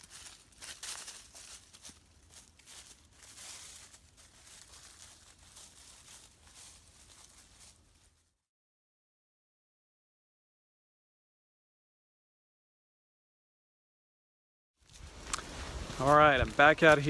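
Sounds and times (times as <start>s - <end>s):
rustling and crackling: 0.0s - 8.3s, 14.9s - 17.0s.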